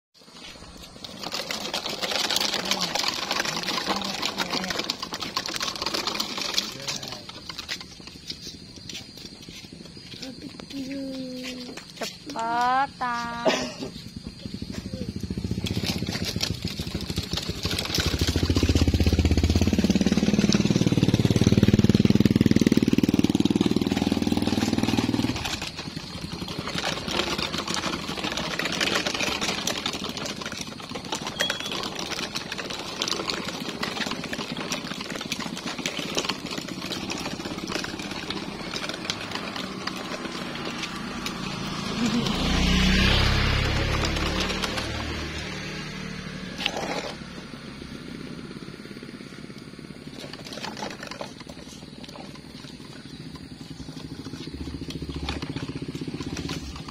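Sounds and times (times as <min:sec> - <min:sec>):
rattles: 0:00.2 - 0:56.9
truck engine working hard: 0:13.2 - 0:56.9.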